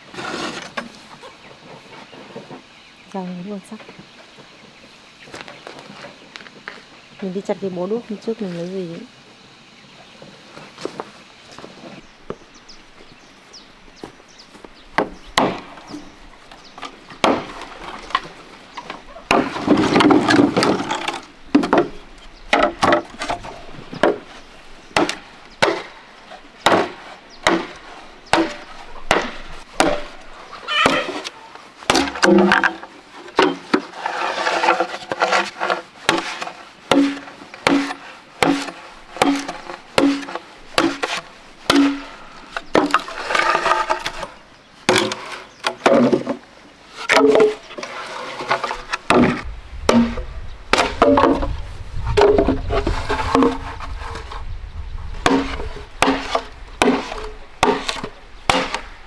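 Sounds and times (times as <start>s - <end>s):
wood being chopped: 14.0s - 33.8s, 34.6s - 44.3s, 44.9s - 46.4s, 47.1s - 47.7s, 48.6s - 54.4s, 55.1s - 59.0s.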